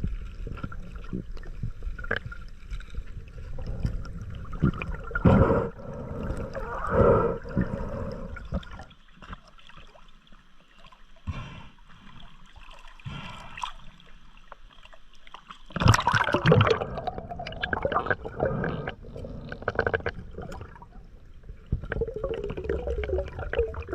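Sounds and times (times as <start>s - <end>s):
water sloshing and gurgling: 0.0s - 23.9s
water splashing: 12.0s - 23.9s.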